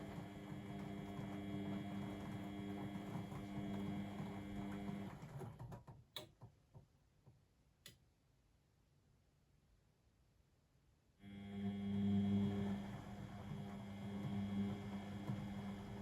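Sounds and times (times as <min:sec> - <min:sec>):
washing machine humming: 0:00.0 - 0:05.6, 0:11.4 - 0:16.0.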